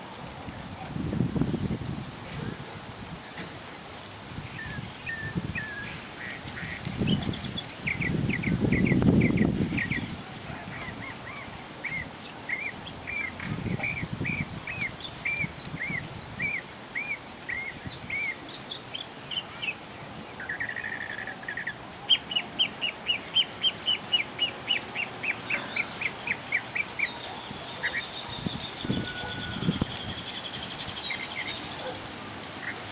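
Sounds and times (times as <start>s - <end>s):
bird whistling notes: 27.0s - 30.2s.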